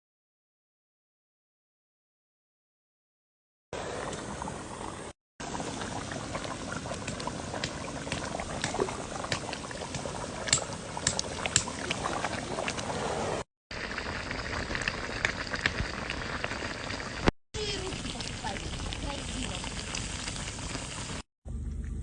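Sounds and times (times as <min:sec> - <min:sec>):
fire popping and crackling: 0:05.4 - 0:13.0, 0:13.7 - 0:21.3
stew simmering in a pot: 0:05.4 - 0:22.0.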